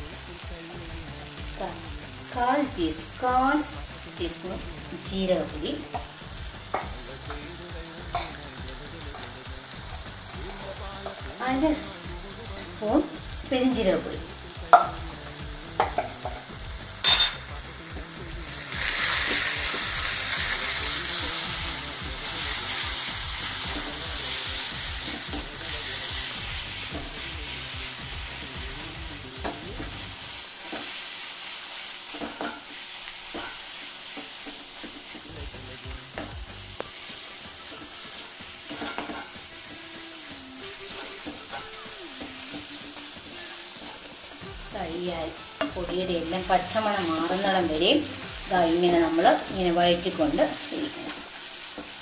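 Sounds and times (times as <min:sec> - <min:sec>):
onions and spices sizzling: 0:00.0 - 0:52.0
wooden spatula scraping pan: 0:36.2 - 0:39.7.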